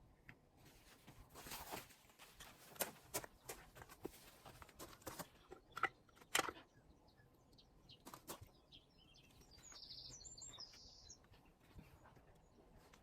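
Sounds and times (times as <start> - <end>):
small bird chirping: 5.3 - 12.9.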